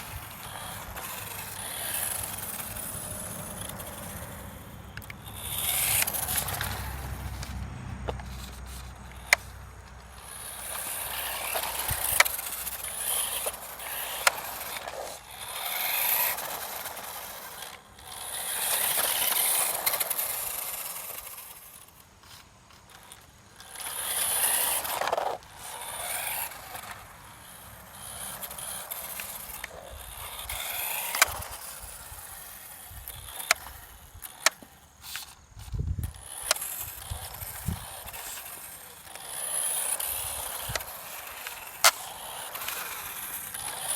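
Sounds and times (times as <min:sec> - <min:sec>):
radio-controlled car motor hiss: 0:00.0 - 0:43.9
sharp clicks: 0:04.9 - 0:15.0.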